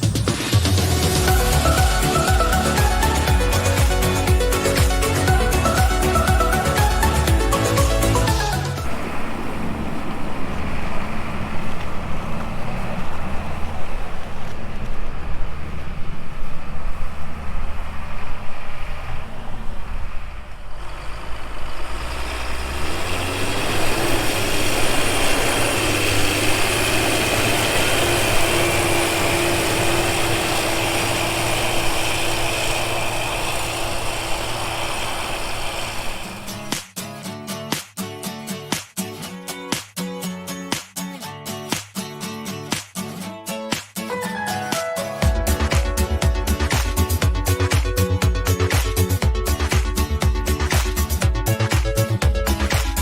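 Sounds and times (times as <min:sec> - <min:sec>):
large engine running: 0:00.0 - 0:36.8, 0:45.2 - 0:53.0
steady whine: 0:00.0 - 0:36.8.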